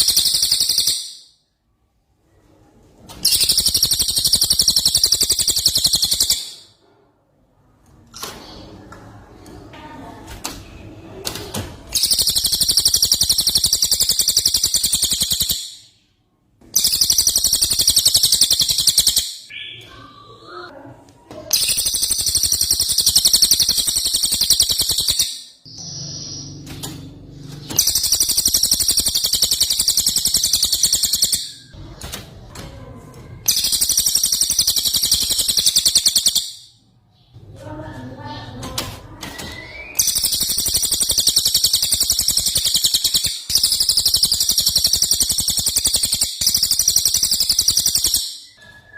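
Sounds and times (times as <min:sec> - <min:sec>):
bird singing high rapid trills: 0:00.0 - 0:01.3, 0:03.3 - 0:06.6, 0:12.0 - 0:16.0, 0:16.8 - 0:20.4, 0:21.6 - 0:31.8, 0:33.5 - 0:36.8, 0:39.7 - 0:48.6.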